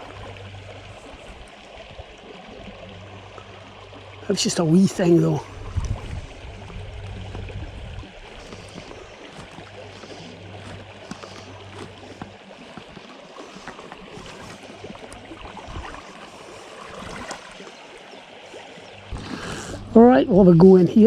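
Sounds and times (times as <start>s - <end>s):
stream running over stones: 0.0s - 21.0s
low rumble: 5.4s - 9.9s.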